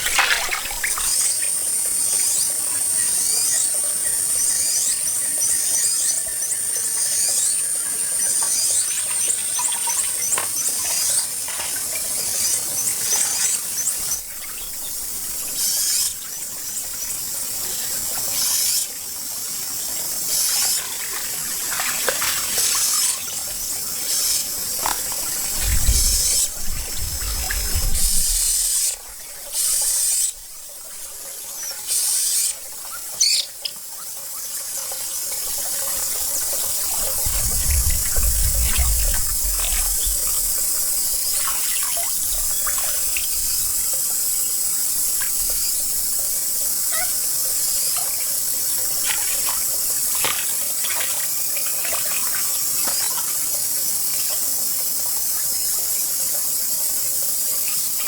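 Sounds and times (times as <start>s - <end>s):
water splashing by hands: 0.0s - 1.4s, 20.4s - 23.5s, 24.4s - 28.7s, 48.6s - 53.3s
low rumble: 25.3s - 28.5s, 37.0s - 40.9s.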